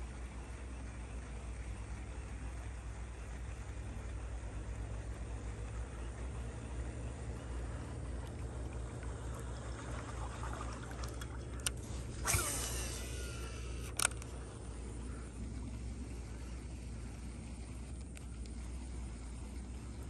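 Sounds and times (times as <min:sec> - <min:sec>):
spool whirring: 0:00.0 - 0:20.0
steady low hum: 0:00.0 - 0:20.0
reel clicking: 0:10.5 - 0:20.0.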